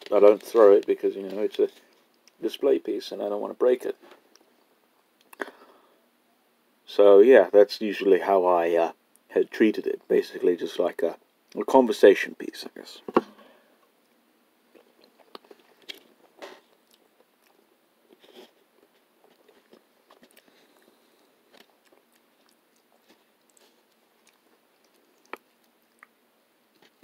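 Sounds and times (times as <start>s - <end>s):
faint chewing: 13.8s - 27.0s.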